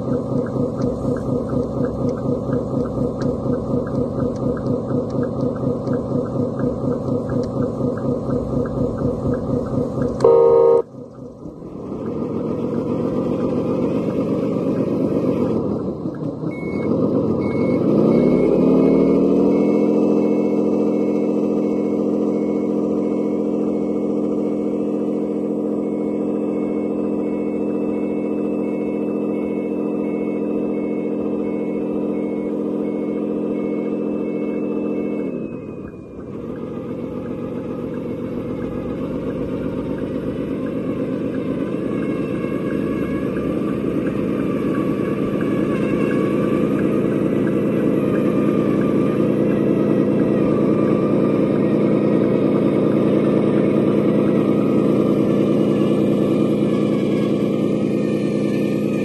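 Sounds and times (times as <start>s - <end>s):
toy truck diesel engine sound: 0.0s - 59.0s
reversing beeps: 1.8s - 10.9s, 16.5s - 52.4s
truck horn blast: 10.2s - 10.9s.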